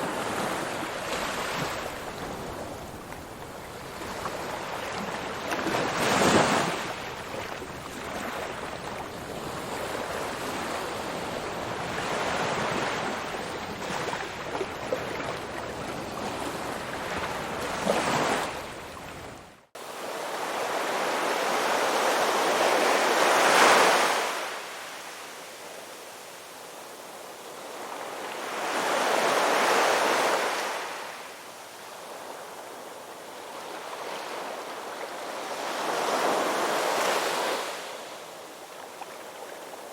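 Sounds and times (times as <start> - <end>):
ocean waves breaking: 0.0 - 24.8.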